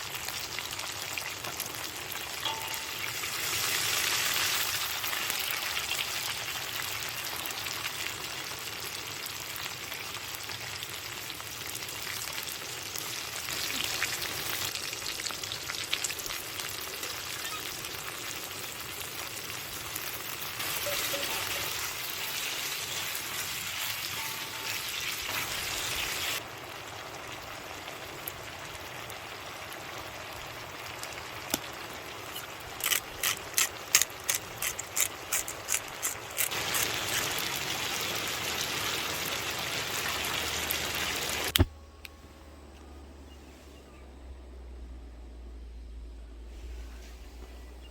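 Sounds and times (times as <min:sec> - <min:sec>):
food sizzling in a pan: 0:00.0 - 0:32.6, 0:36.2 - 0:41.5.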